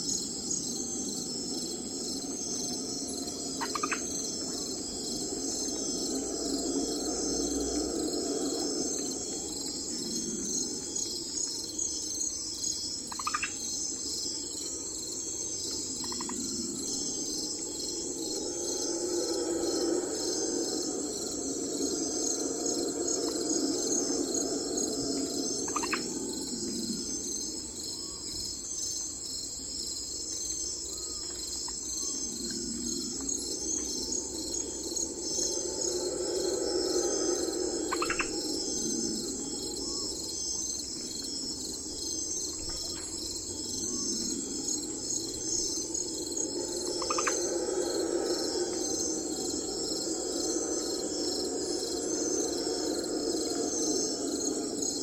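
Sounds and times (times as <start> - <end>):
insects chirping: 0.0 - 55.0
low swelling sound: 16.2 - 27.3, 32.2 - 41.0, 43.5 - 55.0.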